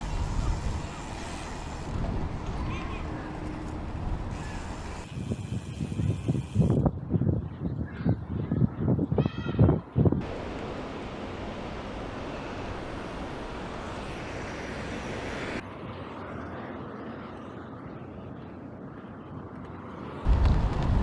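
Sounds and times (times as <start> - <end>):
low wind rumble buffeting microphone: 0.0 - 15.6, 20.3 - 21.0
wind rushing on microphone: 0.0 - 15.6, 20.3 - 21.0.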